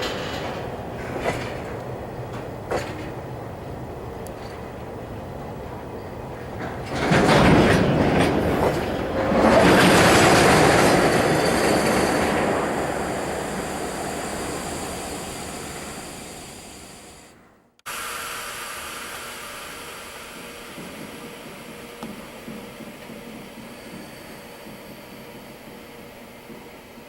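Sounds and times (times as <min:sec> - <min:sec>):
freight train rolling: 0:00.0 - 0:27.0
steady hiss: 0:11.5 - 0:23.0.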